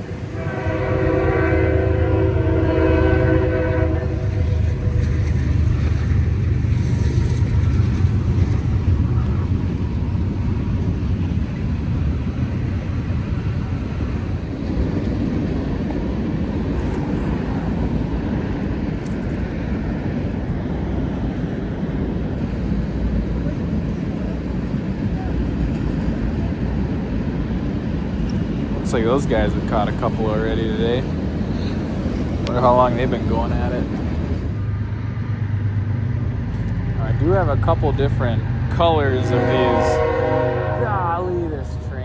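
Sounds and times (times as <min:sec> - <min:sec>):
train rumbling on tracks: 0:00.0 - 0:42.0
train horn chord: 0:00.3 - 0:04.5, 0:39.0 - 0:41.9.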